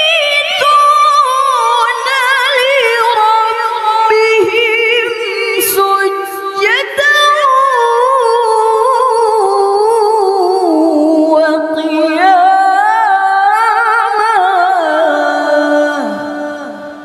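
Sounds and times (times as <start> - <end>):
woman reciting melodically: 0.0 - 17.0.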